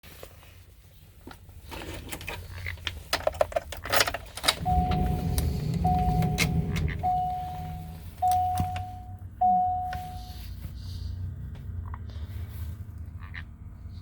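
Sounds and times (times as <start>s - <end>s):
diesel engine starting and idling: 4.4s - 11.5s
electronic warning chime: 4.6s - 10.4s.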